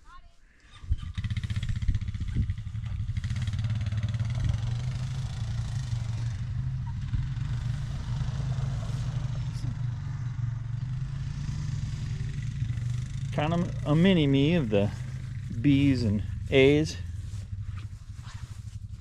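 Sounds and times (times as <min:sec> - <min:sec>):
two-cylinder engine idling: 0:06.3 - 0:17.8.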